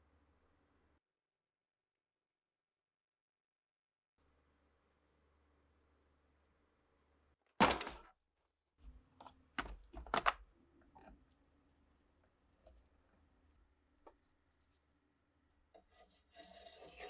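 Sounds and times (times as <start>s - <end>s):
objects clicking on a workbench: 9.2s - 11.4s.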